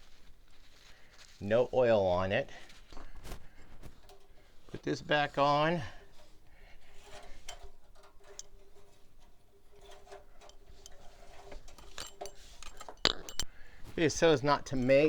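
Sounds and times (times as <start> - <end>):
clicks of parts being handled: 6.0 - 14.0.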